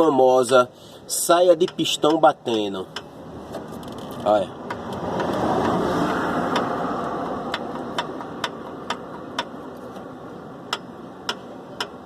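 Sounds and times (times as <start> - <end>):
car passing on road: 3.2 - 11.2
piston knocking in cylinder: 6.5 - 9.6.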